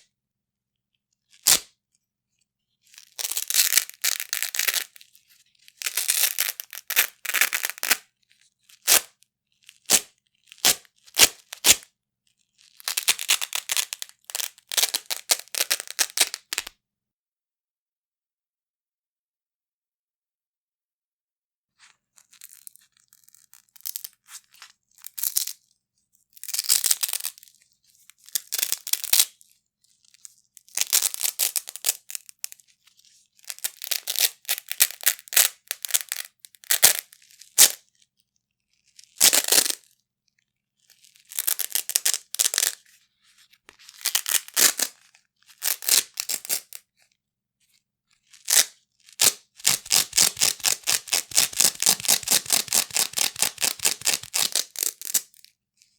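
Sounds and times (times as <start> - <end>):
velcro ripping apart: 1.4 - 1.7, 3.2 - 5.1, 5.7 - 8.0, 8.7 - 9.1, 9.8 - 11.8, 12.7 - 16.7, 33.5 - 37.8, 39.0 - 39.8, 41.3 - 42.8, 43.9 - 45.0, 45.6 - 46.8, 48.4 - 55.4.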